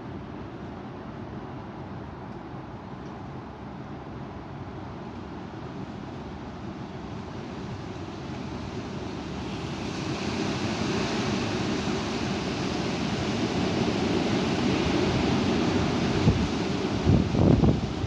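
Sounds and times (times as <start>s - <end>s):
wind buffeting microphone: 9.7s - 18.0s.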